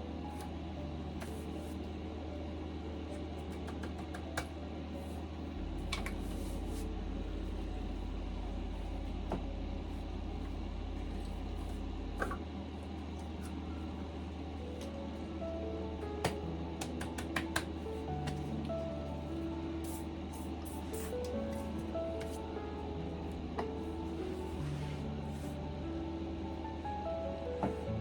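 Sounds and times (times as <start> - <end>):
low garage hum: 4.2 - 16.8.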